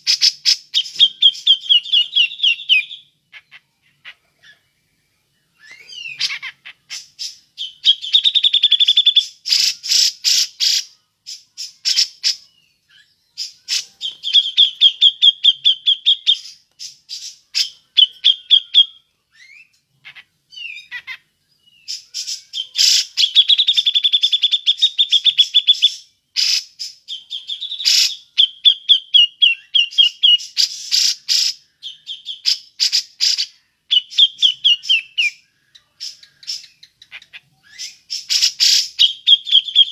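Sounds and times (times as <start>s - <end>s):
harsh bird calls: 0.0s - 39.9s
bulbul trilling: 13.4s - 18.9s.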